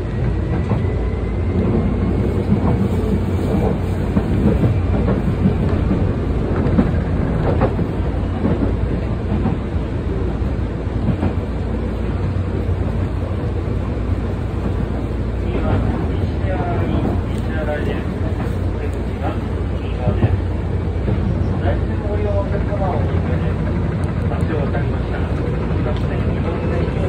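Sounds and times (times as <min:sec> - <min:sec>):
train low rumble: 0:00.0 - 0:27.0.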